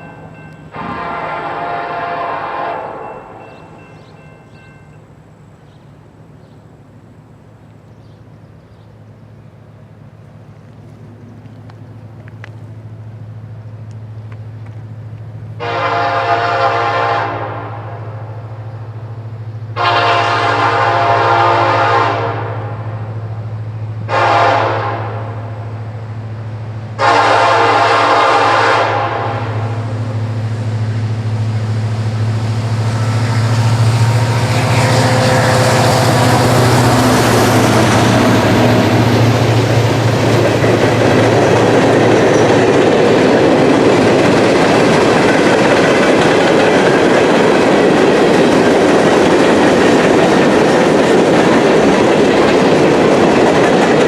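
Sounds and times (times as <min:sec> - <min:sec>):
locomotive engine hum: 0:00.0 - 0:54.0
locomotive horn blasts: 0:00.7 - 0:03.8, 0:15.6 - 0:18.4, 0:19.7 - 0:23.1, 0:24.0 - 0:25.6, 0:27.0 - 0:29.9
train cars clattering on rails: 0:34.4 - 0:54.0.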